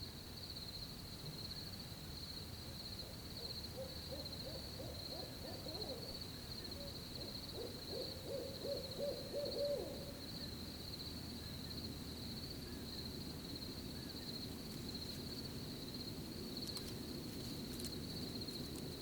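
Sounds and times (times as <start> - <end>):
crickets trilling: 0.0 - 19.0
owl hooting: 3.0 - 10.2.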